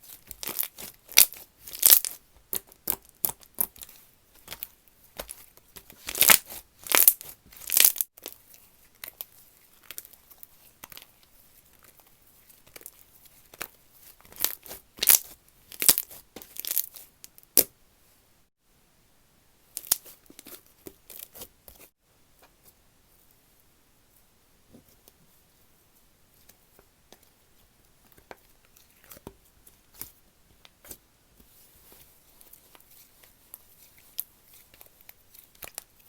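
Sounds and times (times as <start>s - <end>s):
slime crackling and tearing: 0.4s - 3.8s, 6.0s - 8.0s, 14.3s - 16.9s.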